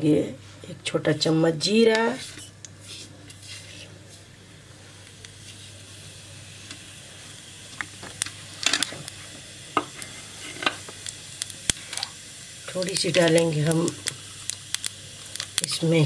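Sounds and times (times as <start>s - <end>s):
seeds sizzling in hot fat: 0.0s - 16.0s
sharp crackles: 4.8s - 16.0s.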